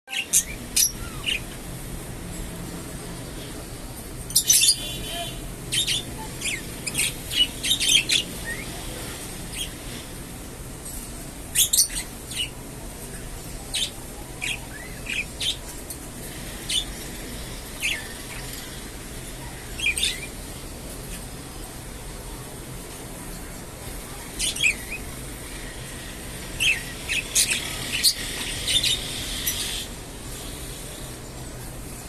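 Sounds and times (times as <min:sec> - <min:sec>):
budgerigars chirping and squawking: 0:00.1 - 0:01.6, 0:04.3 - 0:10.0, 0:11.6 - 0:12.6, 0:13.7 - 0:18.8, 0:19.8 - 0:20.3, 0:26.5 - 0:30.5.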